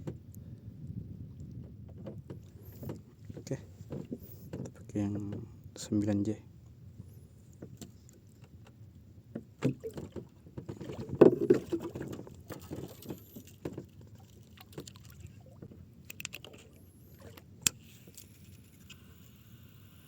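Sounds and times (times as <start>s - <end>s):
knocks and clicks on a boat: 0.0s - 0.4s, 1.4s - 6.3s, 7.5s - 17.8s.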